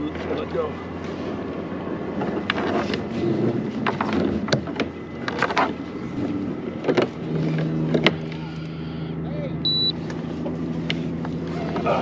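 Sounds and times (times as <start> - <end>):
low steady hum: 0.0 - 12.0
knocks and clicks of gear: 2.2 - 8.4.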